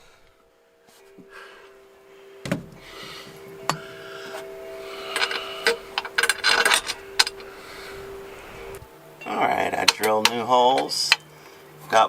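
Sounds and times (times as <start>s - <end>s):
faint steady tone: 0.0s - 12.0s
tools and bolts clinking: 2.5s - 7.5s, 8.1s - 12.0s.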